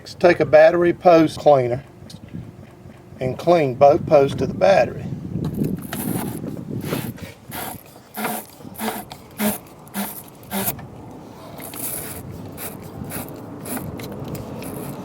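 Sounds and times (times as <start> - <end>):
brush scraping battery post: 5.5 - 15.0.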